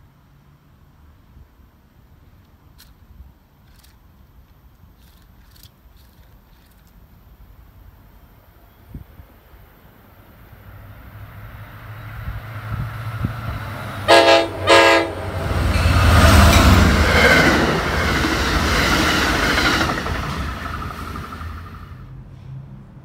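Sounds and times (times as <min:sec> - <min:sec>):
train wheels on rail: 0:10.5 - 0:23.0
train horn blasts: 0:13.1 - 0:17.9.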